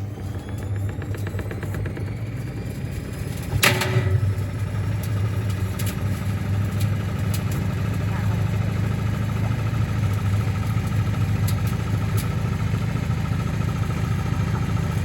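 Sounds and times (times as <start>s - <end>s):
washing machine motor hum: 0.0s - 15.0s
loud metallic bang: 3.3s - 4.5s.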